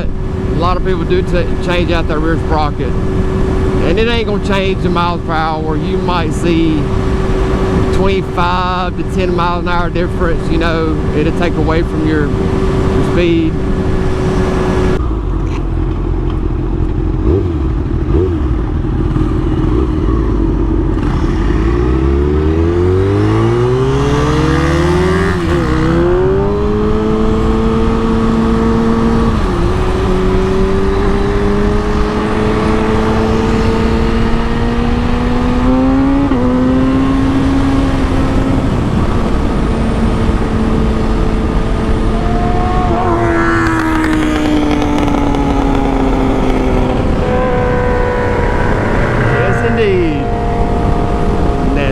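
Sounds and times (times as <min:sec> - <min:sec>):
motorcycle engine accelerating: 0:00.0 - 0:51.9
wind rumble on microphone: 0:00.0 - 0:51.9.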